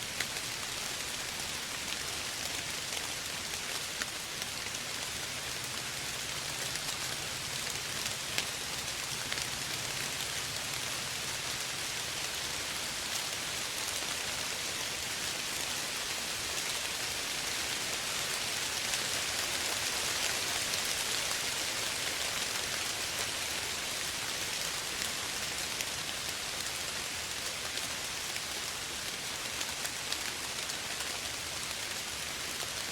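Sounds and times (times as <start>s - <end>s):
soft rain falling: 0.0s - 32.9s.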